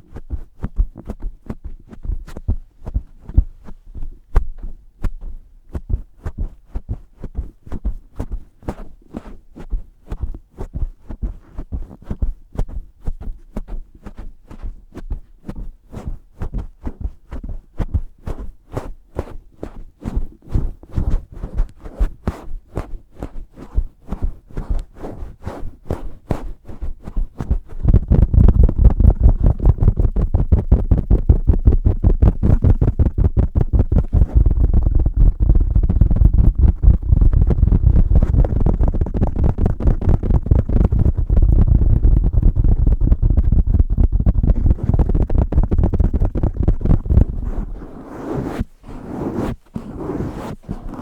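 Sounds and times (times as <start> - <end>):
microphone cover squeezed: 24.1 - 51.0.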